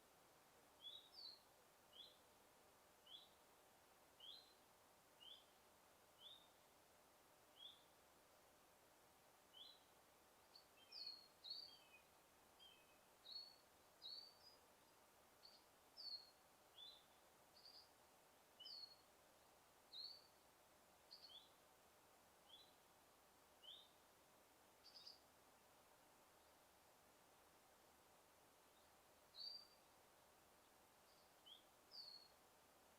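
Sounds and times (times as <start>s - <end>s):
faint steady hiss: 0.0s - 32.9s
songbirds chirping: 0.0s - 32.9s.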